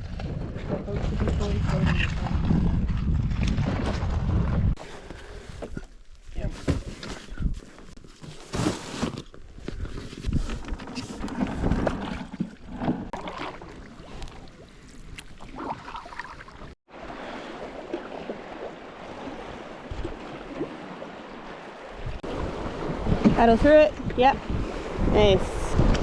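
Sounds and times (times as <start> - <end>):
water splashing around canoe hull: 6.6 - 26.0.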